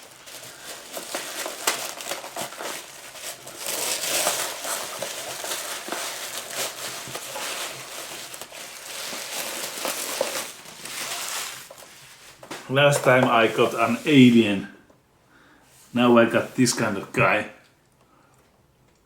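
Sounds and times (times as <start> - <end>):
crackles and clicks: 0.0 - 13.4
packaging crinkling and rustling: 0.0 - 14.4.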